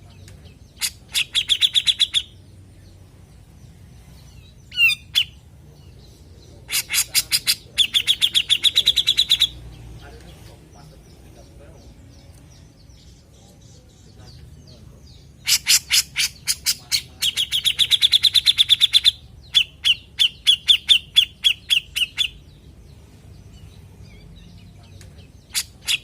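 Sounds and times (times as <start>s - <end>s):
bird chattering calls: 0.1s - 2.5s, 4.3s - 11.9s, 14.2s - 22.6s, 24.0s - 26.0s.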